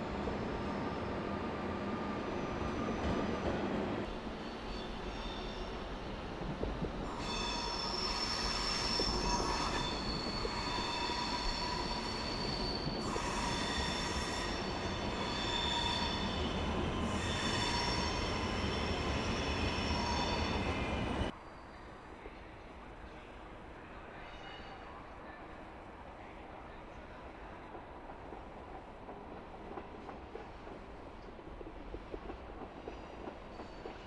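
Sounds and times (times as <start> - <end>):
train rumbling: 0.0 - 21.4, 27.4 - 34.0
train wheels squealing: 0.6 - 3.5, 4.1 - 6.4, 7.0 - 22.4, 24.0 - 25.1, 32.8 - 34.0.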